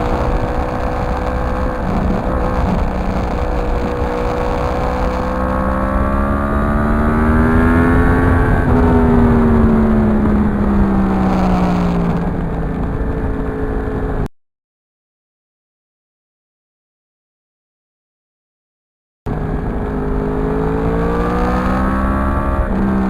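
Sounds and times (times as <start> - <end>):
low rush of noise: 0.0 - 14.3
motorcycle engine accelerating: 0.0 - 14.3, 19.3 - 23.0.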